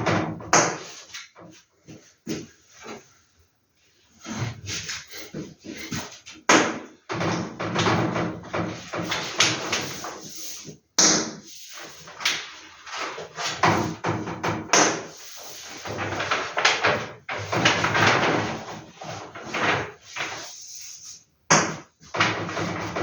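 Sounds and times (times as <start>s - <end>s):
paper posters rustling: 15.0s - 21.2s.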